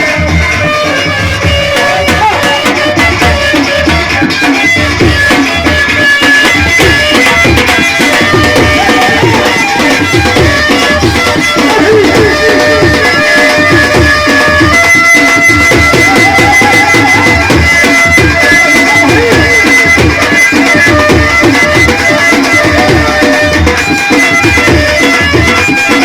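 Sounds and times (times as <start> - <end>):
hand drum beat: 0.0 - 26.0
reedy melody: 0.0 - 26.0.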